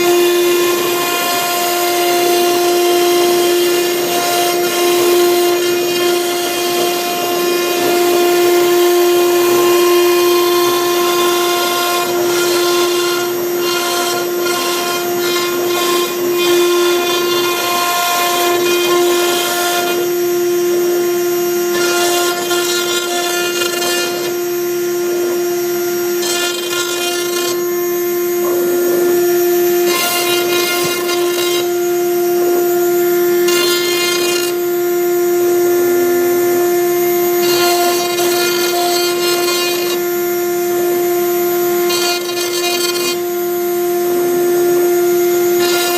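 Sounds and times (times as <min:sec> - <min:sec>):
router spindle whining: 0:00.0 - 0:45.9.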